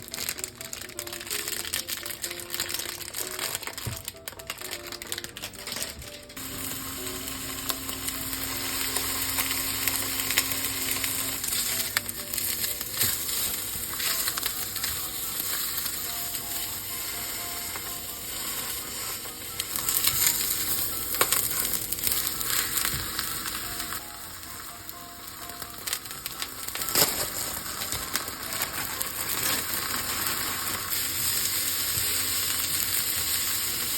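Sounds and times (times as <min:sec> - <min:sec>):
soft background music: 0:00.0 - 0:33.9
food sizzling in oil: 0:06.4 - 0:33.9.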